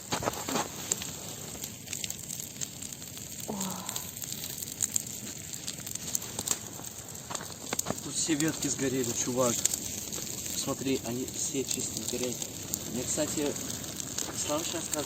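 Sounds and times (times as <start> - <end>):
bonfire crackling and hissing: 0.0 - 15.0.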